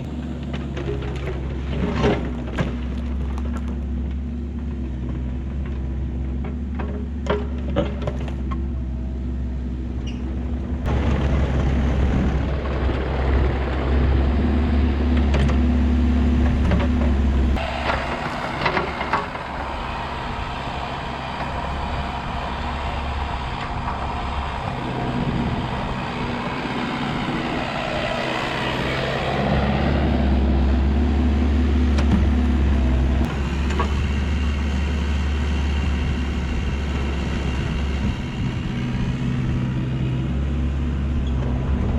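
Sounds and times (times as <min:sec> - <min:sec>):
excavator diesel engine drone: 0:00.0 - 0:41.9
rough crackling and scraping: 0:10.8 - 0:39.7.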